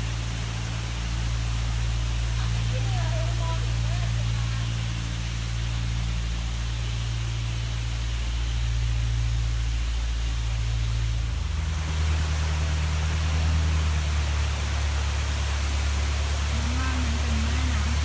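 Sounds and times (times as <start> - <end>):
constant rushing noise: 0.0 - 18.0
engine running: 0.0 - 18.0.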